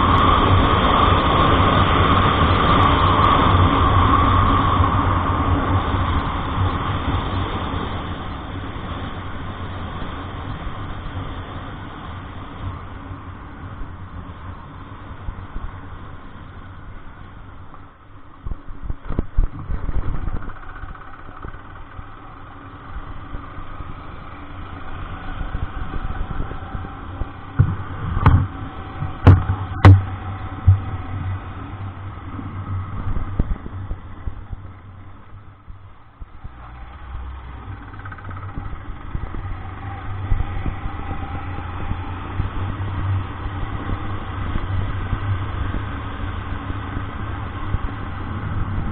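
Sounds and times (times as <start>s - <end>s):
vehicle engine running: 0.0s - 48.9s
loud knocks and thumps: 27.6s - 28.5s, 29.1s - 30.9s.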